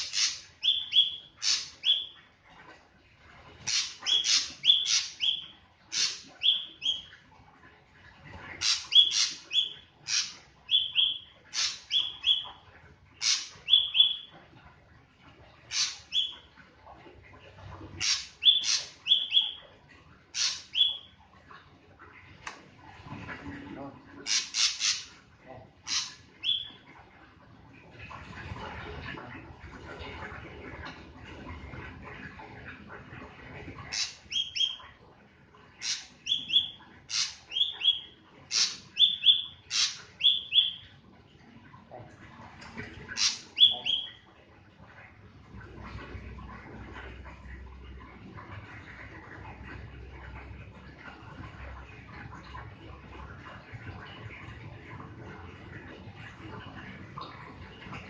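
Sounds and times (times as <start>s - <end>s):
bird harsh rasping calls: 0.0s - 2.0s, 3.7s - 7.0s, 8.6s - 12.4s, 13.2s - 14.1s, 15.7s - 16.3s, 18.0s - 19.6s, 20.4s - 21.0s, 24.3s - 25.1s, 25.8s - 26.7s, 35.8s - 40.8s, 43.1s - 44.1s.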